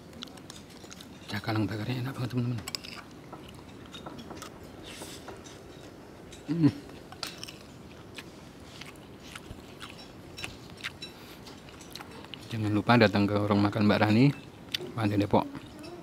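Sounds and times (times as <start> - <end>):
person chewing: 2.7 - 5.3, 7.0 - 12.5
person humming: 15.4 - 16.0.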